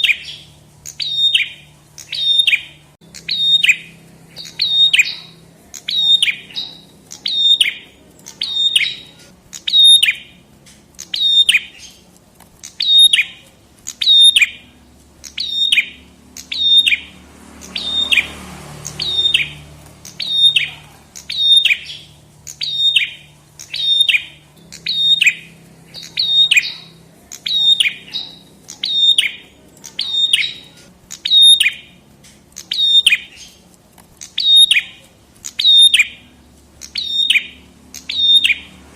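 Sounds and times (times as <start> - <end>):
songbird calling sharp high notes: 0.0 - 38.9.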